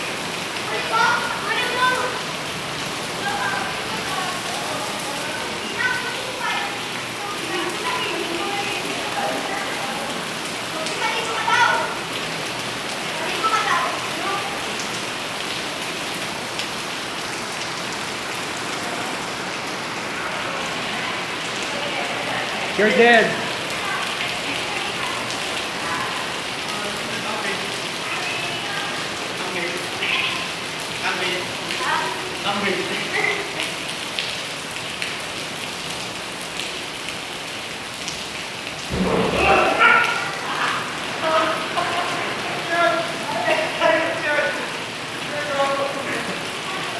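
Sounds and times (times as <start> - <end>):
heavy rain falling: 0.0 - 46.9
raindrops ticking nearby: 0.0 - 46.9
low rumble: 38.9 - 39.8.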